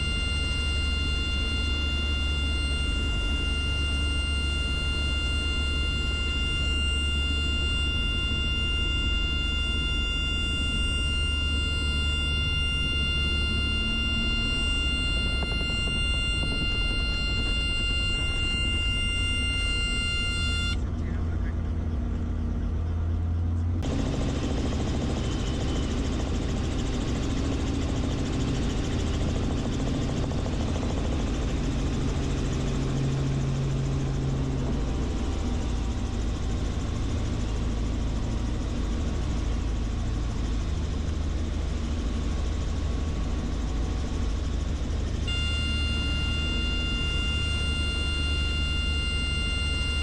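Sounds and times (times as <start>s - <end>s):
high-pitched tone: 0.0s - 20.8s, 45.1s - 50.0s
helicopter rotor and engine: 0.0s - 50.0s.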